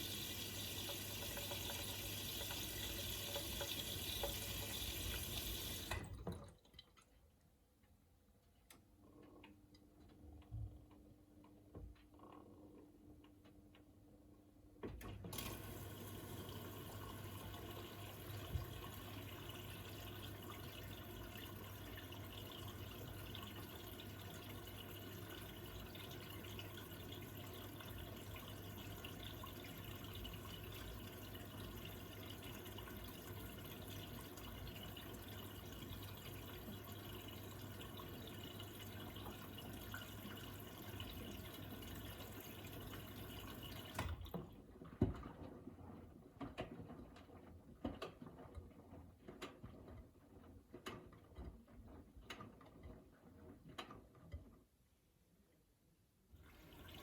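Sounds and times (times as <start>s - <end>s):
water rushing into washing machine: 0.0s - 7.0s, 15.0s - 45.7s, 56.3s - 57.0s
water trickling and dripping: 0.0s - 7.1s, 15.4s - 44.4s, 56.4s - 57.0s.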